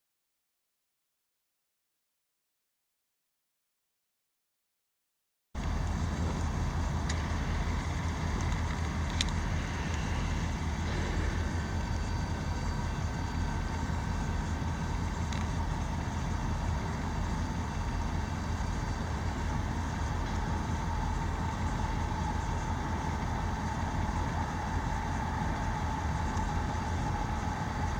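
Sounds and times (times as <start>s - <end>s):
locomotives rumbling: 5.6s - 27.9s.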